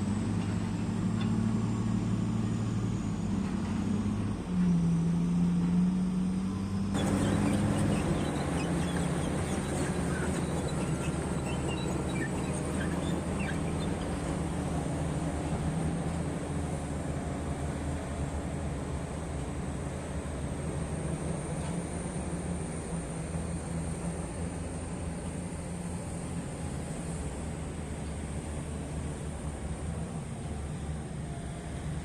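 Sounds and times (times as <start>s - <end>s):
diesel engine running: 0.0s - 32.0s
faint short chirps: 7.0s - 14.1s.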